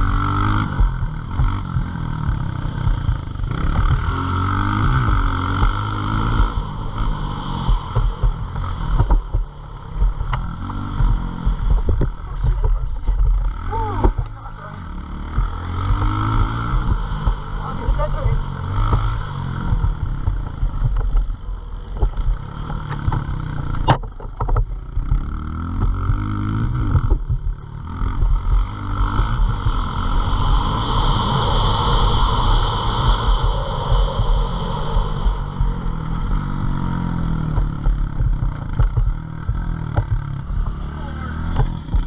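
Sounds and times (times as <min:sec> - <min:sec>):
motorbike engine revving: 0:00.0 - 0:42.0
wind buffeting microphone: 0:26.1 - 0:40.4.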